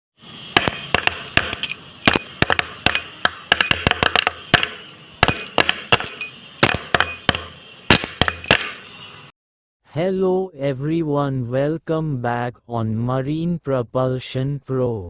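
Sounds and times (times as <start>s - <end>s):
hard objects clinking: 0.6s - 9.2s.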